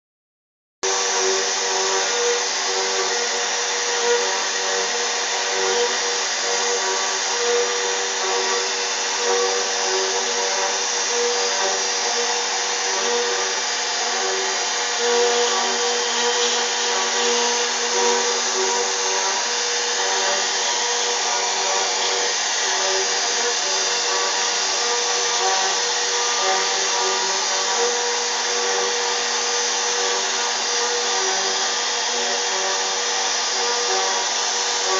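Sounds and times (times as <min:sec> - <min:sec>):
router spindle whining: 0:00.8 - 0:34.9.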